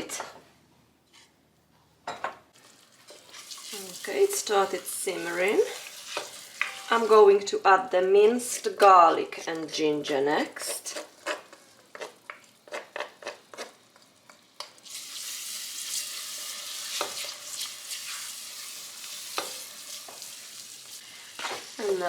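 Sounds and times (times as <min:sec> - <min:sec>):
food sizzling in pan: 0:02.6 - 0:07.2, 0:11.1 - 0:22.0.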